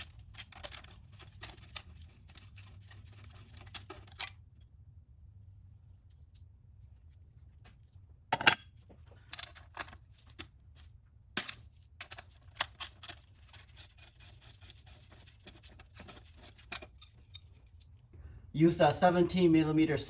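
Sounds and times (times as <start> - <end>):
light scraping and rattling: 12.0 - 18.1.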